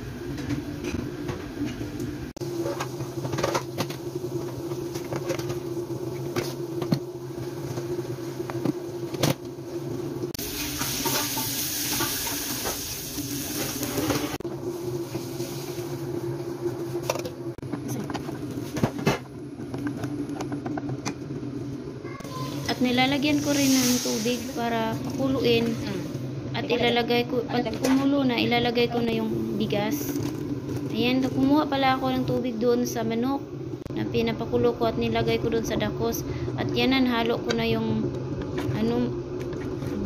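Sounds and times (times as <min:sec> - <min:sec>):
onion frying in hot oil: 0:09.6 - 0:16.4, 0:22.2 - 0:26.3
steady low hum: 0:13.8 - 0:40.0.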